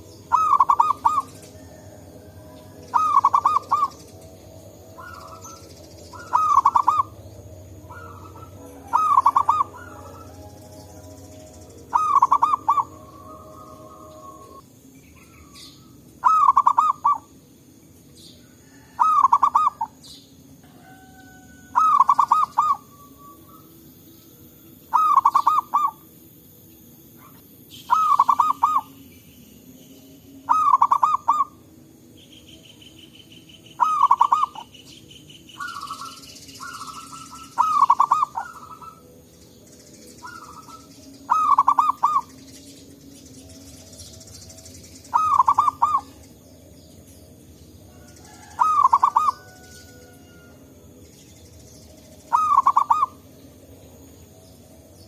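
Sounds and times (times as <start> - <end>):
dove cooing: 0.0 - 11.2, 11.8 - 14.6, 15.2 - 17.3, 18.5 - 20.0, 20.6 - 23.8, 24.9 - 26.1, 27.2 - 29.0, 30.4 - 31.7, 33.8 - 34.8, 35.6 - 39.2, 40.2 - 42.4, 45.0 - 46.4, 47.9 - 50.6, 52.3 - 53.3.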